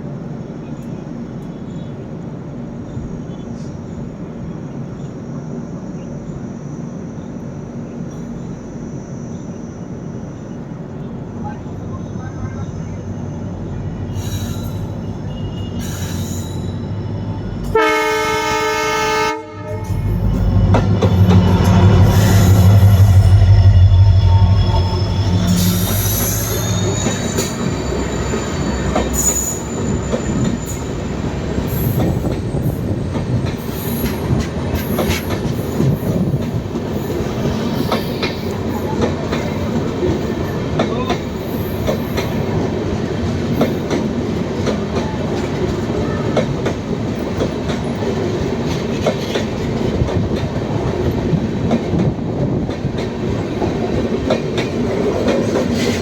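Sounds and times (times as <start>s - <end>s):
high whine: 19.4s - 31.6s
train wheels clattering: 19.8s - 56.0s.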